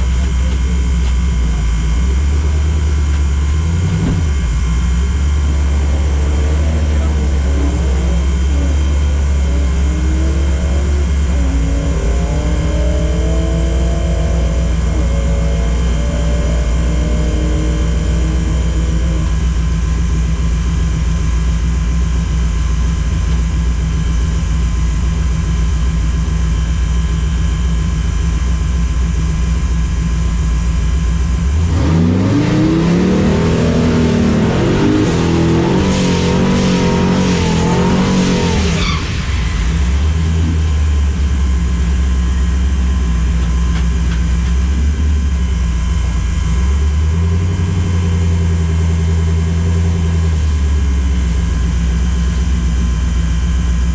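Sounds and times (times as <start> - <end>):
car engine idling and revving: 0.0 - 53.9.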